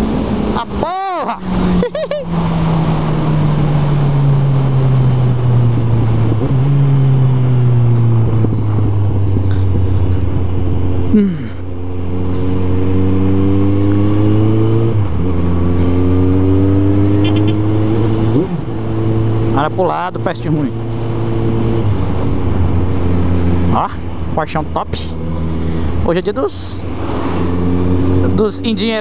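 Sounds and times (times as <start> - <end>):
motorcycle engine running: 1.4 - 24.3
wind noise: 1.5 - 11.2.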